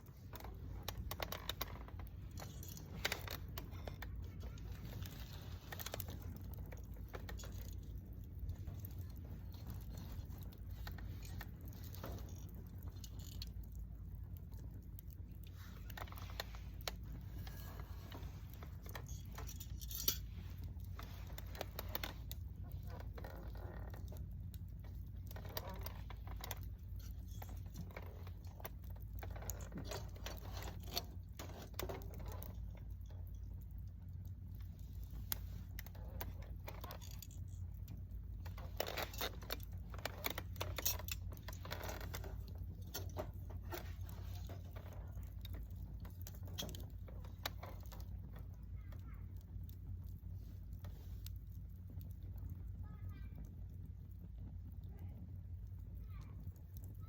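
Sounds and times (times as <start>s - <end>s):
campfire crackling and popping: 0.0s - 57.0s
low steady rumble: 0.0s - 57.0s.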